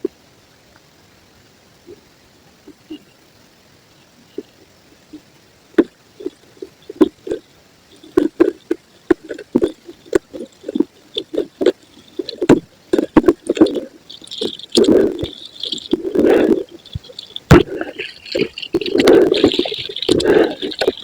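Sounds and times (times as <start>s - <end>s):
concrete crunching and crumbling: 8.1s - 21.0s.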